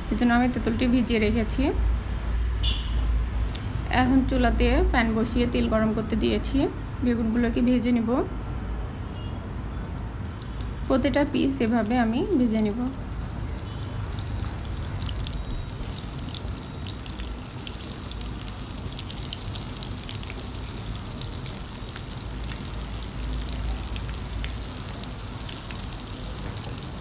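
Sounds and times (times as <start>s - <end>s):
eggplant sizzling in hot oil: 10.0s - 27.0s.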